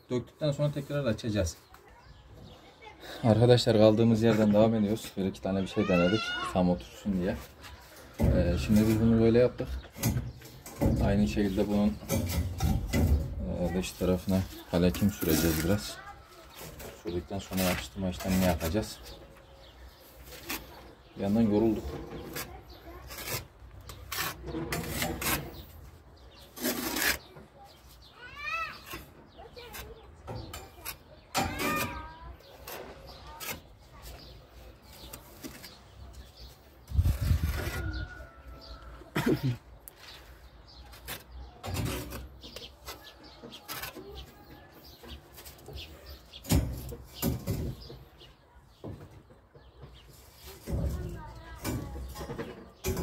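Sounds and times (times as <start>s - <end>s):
birds chirping: 0.0s - 53.0s
trowel scraping adhesive on brick: 20.0s - 27.8s, 28.8s - 36.3s.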